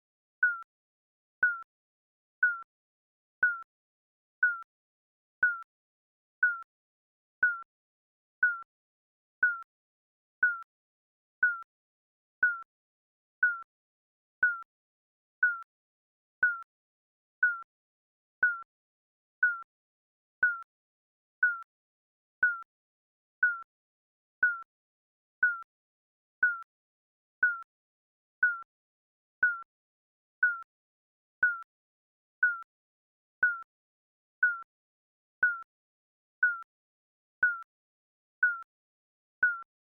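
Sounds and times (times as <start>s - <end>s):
timer beeping: 0.4s - 0.7s, 1.4s - 1.6s, 2.4s - 2.7s, 3.4s - 3.7s, 4.4s - 4.6s, 5.4s - 5.6s, 6.4s - 6.7s, 7.4s - 7.7s, 8.4s - 8.7s, 9.4s - 9.7s, 10.4s - 10.6s, 11.4s - 11.7s, 12.4s - 12.6s, 13.4s - 13.7s, 14.4s - 14.6s, 15.4s - 15.6s, 16.4s - 16.6s, 17.4s - 17.6s, 18.4s - 18.6s, 19.4s - 19.6s, 20.4s - 20.6s, 21.4s - 21.6s, 22.4s - 22.6s, 23.4s - 23.6s, 24.4s - 24.6s, 25.4s - 25.6s, 26.4s - 26.6s, 27.4s - 27.6s, 28.4s - 28.7s, 29.4s - 29.7s, 30.4s - 30.6s, 31.4s - 31.6s, 32.4s - 32.7s, 33.4s - 33.7s, 34.4s - 34.7s, 35.4s - 35.7s, 36.4s - 36.7s, 37.4s - 37.7s, 38.4s - 38.6s, 39.4s - 39.7s.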